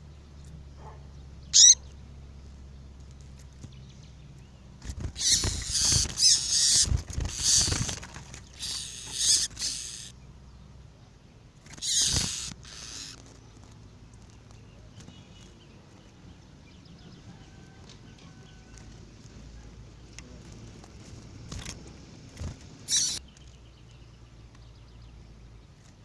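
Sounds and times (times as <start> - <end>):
faint bird chirps: 0.0 - 2.1, 8.5 - 13.8, 22.9 - 25.4
bird song high-pitched bursts: 1.4 - 2.0, 5.2 - 10.2, 11.8 - 13.2, 22.9 - 25.0.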